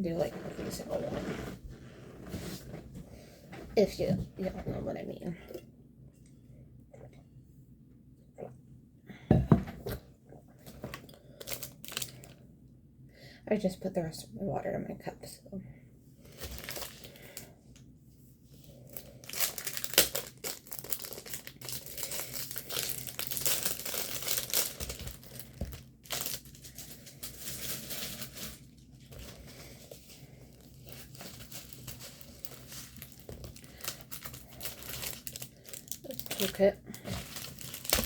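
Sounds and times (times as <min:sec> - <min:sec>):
plastic packaging crinkling: 0:10.6 - 0:12.4, 0:16.3 - 0:17.4, 0:18.9 - 0:38.0.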